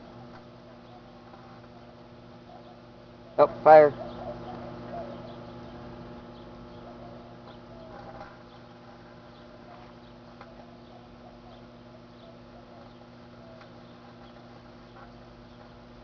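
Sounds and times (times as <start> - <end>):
burning food crackling and popping: 0.0 - 2.4, 7.4 - 16.0
microwave oven humming: 0.0 - 16.0.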